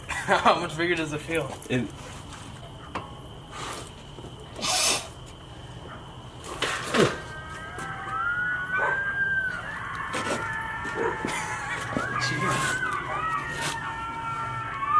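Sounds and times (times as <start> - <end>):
coyotes howling: 4.6 - 14.9.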